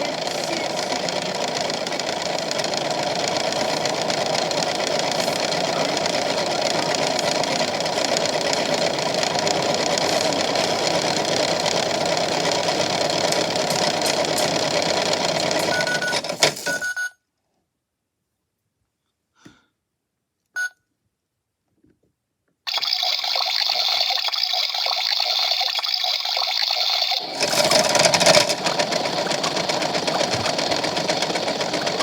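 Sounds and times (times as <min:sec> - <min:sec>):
toy washing machine motor: 0:00.0 - 0:16.8, 0:22.7 - 0:32.0
short beeps: 0:20.6 - 0:20.8.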